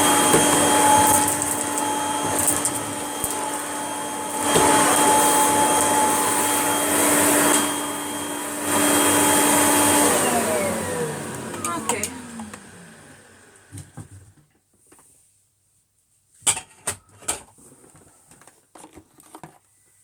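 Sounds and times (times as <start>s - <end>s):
vacuum cleaner motor whine: 0.0s - 14.3s.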